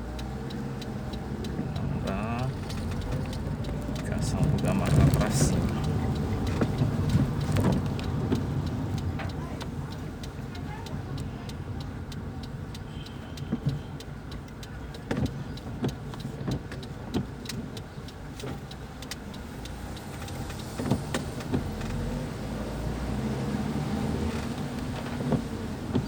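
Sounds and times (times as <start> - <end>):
car engine and road rumble: 0.0 - 26.0
light regular ticking: 0.0 - 26.0.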